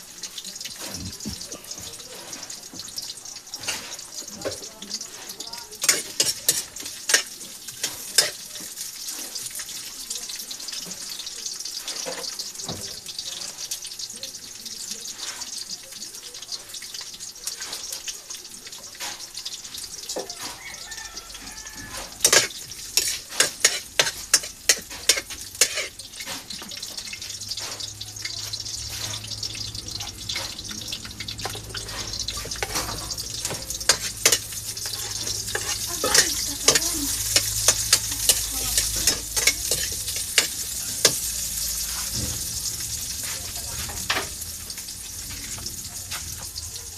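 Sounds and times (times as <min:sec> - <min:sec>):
water running in a sink: 0:00.0 - 0:46.9.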